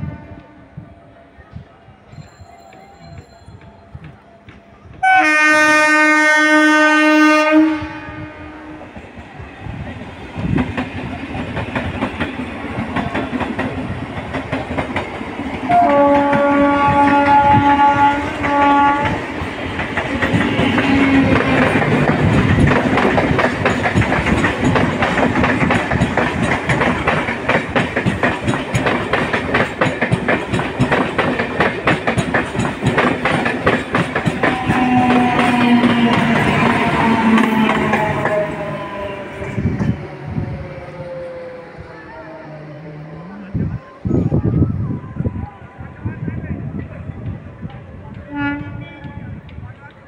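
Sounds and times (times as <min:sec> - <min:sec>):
train horn: 0:00.0 - 0:01.0, 0:05.0 - 0:09.0, 0:15.6 - 0:19.3, 0:20.4 - 0:21.7, 0:34.2 - 0:39.3, 0:48.2 - 0:49.4
train wheels clattering over rail joints: 0:18.4 - 0:38.7.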